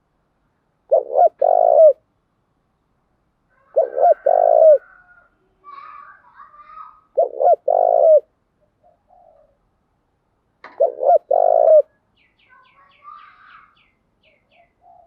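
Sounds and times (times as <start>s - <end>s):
dove cooing: 0.9s - 2.0s, 3.6s - 5.1s, 7.2s - 9.6s, 10.7s - 11.9s, 14.5s - 15.0s
small birds chirping: 5.6s - 9.6s, 10.7s - 15.0s.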